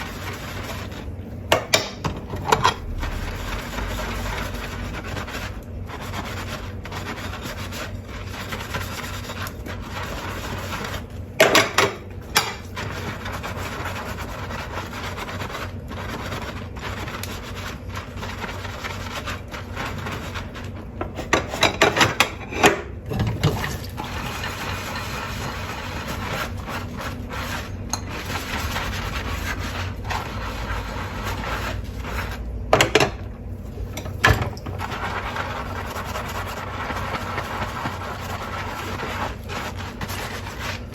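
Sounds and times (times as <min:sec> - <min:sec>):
sponge scrubbing dishes: 0:00.0 - 0:40.9
dishes clinking and clattering: 0:21.0 - 0:23.9.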